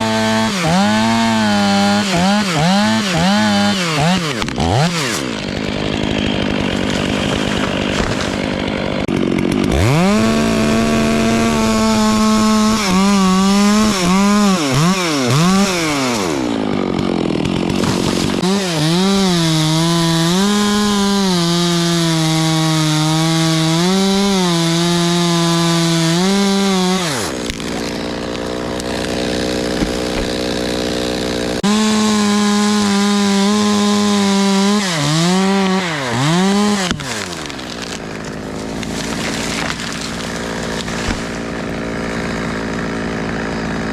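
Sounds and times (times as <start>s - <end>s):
chainsaw revving and cutting wood: 0.0s - 43.9s.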